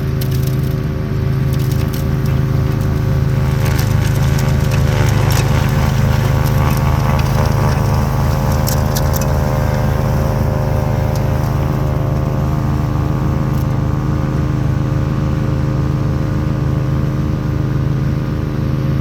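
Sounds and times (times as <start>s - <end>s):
lawn tractor engine running: 0.0s - 19.0s
sharp clicks: 1.4s - 12.4s.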